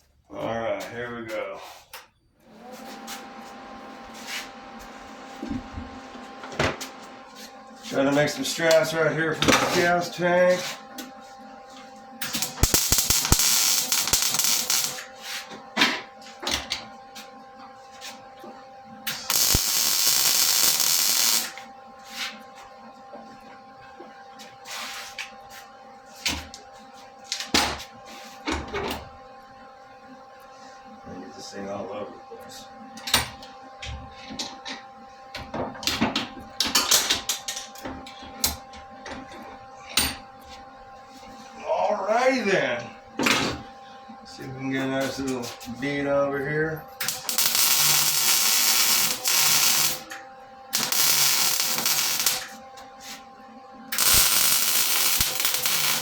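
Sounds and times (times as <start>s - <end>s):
welding arc crackling and hissing: 2.8s - 10.7s, 12.2s - 15.5s, 19.1s - 21.6s, 47.0s - 50.1s, 50.7s - 53.2s, 53.9s - 56.0s.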